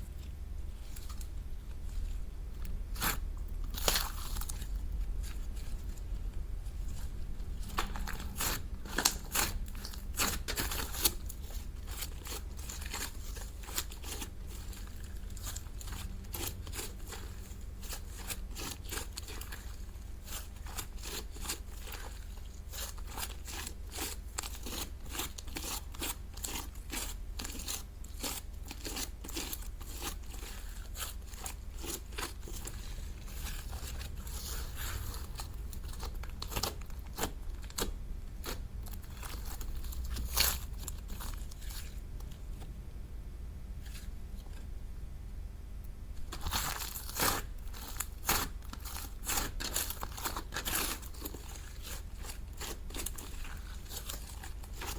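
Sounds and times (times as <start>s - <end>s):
slime clicking and crackling: 2.6s - 5.5s, 7.7s - 42.0s, 46.2s - 54.9s.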